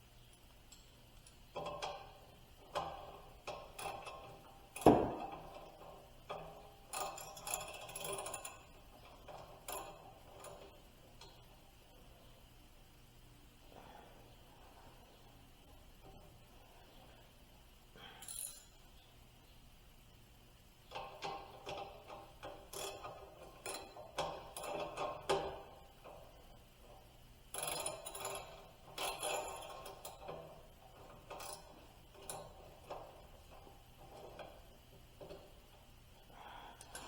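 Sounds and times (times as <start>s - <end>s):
tools clicking on metal parts: 0.6s - 11.4s, 20.9s - 26.4s, 27.0s - 37.0s.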